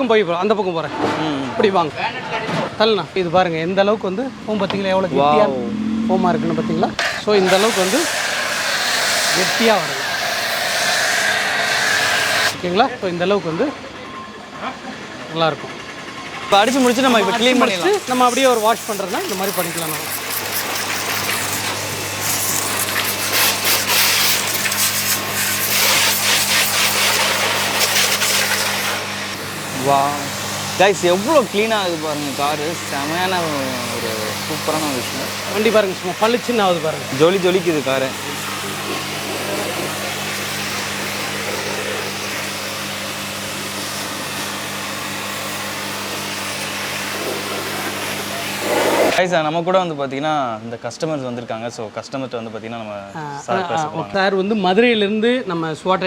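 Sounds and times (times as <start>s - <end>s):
washer motor humming: 6.4s - 12.8s, 15.4s - 49.2s
pressure washer jet hissing: 6.9s - 12.7s, 16.5s - 49.2s.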